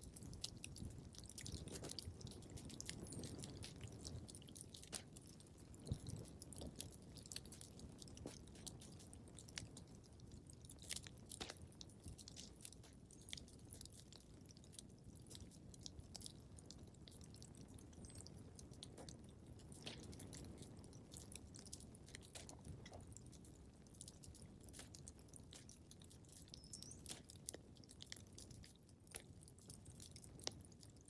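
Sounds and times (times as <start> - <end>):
wood fire crackling: 0.0 - 31.0
snaps and pops from fire: 4.8 - 5.3, 11.4 - 11.7.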